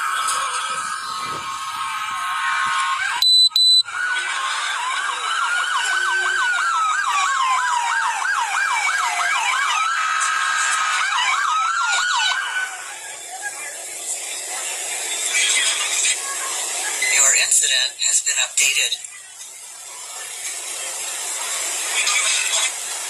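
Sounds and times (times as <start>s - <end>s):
siren yelping: 0.0s - 13.0s
siren wailing: 0.0s - 13.2s
loud high beeps: 3.2s - 3.9s.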